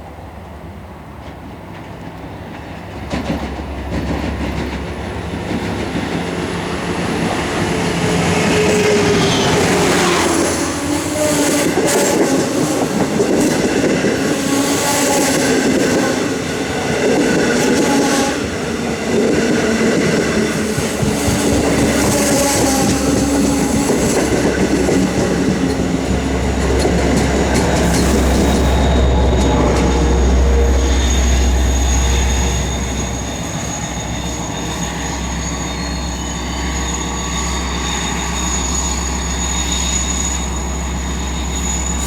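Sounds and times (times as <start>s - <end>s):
train rumble: 0.0s - 42.0s
wheels clicking over rail joints: 1.2s - 6.3s
high-pitched wheel squeal: 6.8s - 13.2s, 20.0s - 42.0s.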